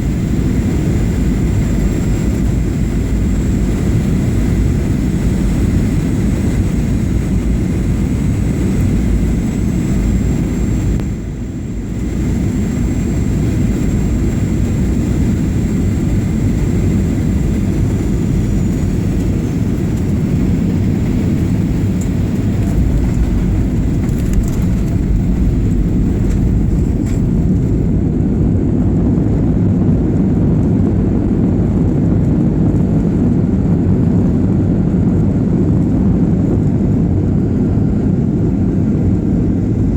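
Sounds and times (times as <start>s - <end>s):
jet engine rumble in cabin: 0.0s - 39.9s.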